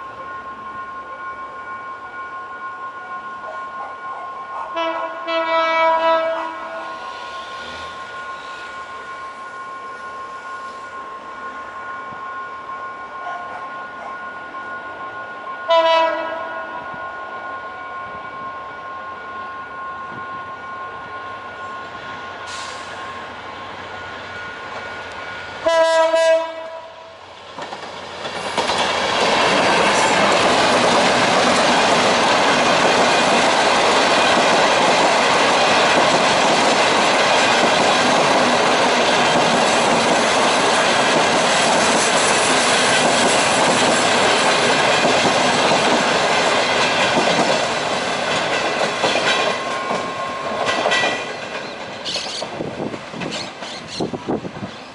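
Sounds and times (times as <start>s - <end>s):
train wheels rumbling on rails: 0.0s - 54.9s
locomotive horn blast: 4.2s - 8.8s, 15.7s - 17.0s, 25.6s - 27.2s.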